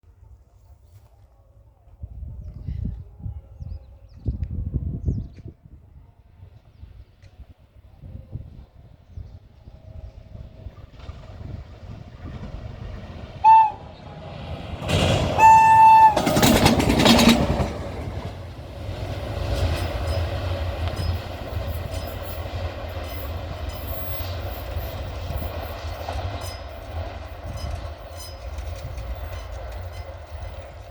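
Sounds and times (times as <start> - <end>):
locomotive rumble: 9.1 - 30.9
wheels clacking on rails: 10.3 - 30.9
train horn blasts: 13.4 - 14.2, 15.2 - 16.7.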